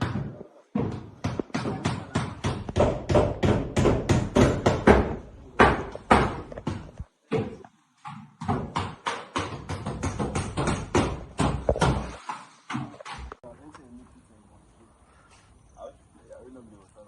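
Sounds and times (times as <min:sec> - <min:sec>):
hammer blows on metal roof tiles: 0:00.0 - 0:13.4.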